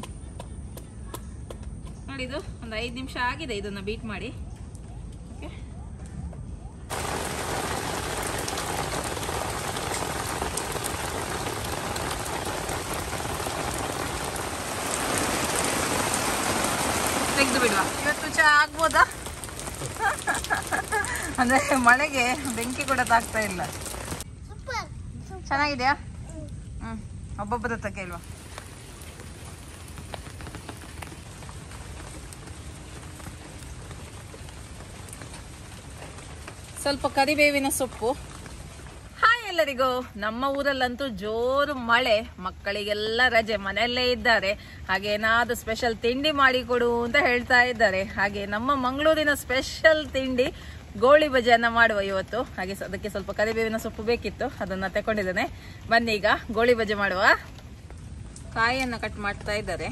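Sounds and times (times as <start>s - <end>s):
heavy rain falling: 6.9s - 24.3s, 27.2s - 59.9s
water drips and splashes: 6.9s - 24.3s, 28.0s - 40.9s.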